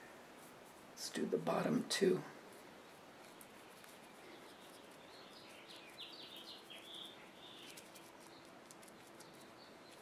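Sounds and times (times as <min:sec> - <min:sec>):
faint steady hum: 0:00.0 - 0:10.0
bird chirping: 0:03.2 - 0:10.0.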